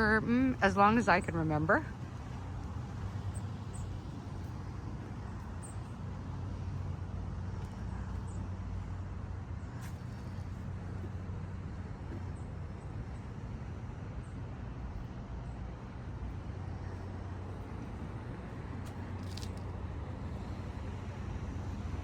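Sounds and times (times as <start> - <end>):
road noise: 0.0 - 22.0
vehicle engine hum: 0.0 - 22.0.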